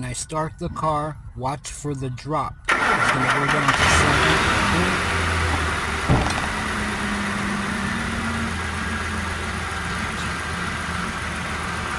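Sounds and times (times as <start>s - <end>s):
car engine idling: 1.2s - 11.9s
thump: 6.0s - 6.6s.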